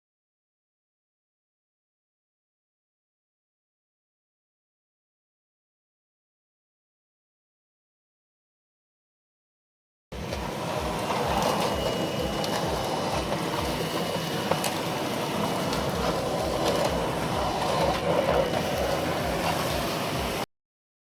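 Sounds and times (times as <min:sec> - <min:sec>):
faint high whine: 0:10.2 - 0:20.5
vacuum cleaner running: 0:10.2 - 0:20.5.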